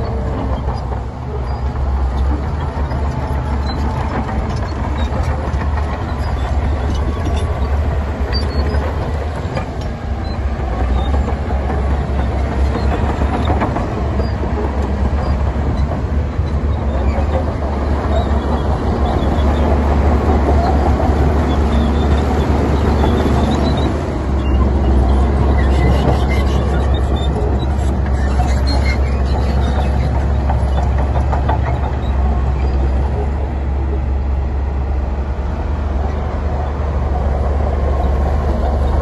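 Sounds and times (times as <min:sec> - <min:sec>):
diesel machinery engine drone: 0:00.0 - 0:39.0.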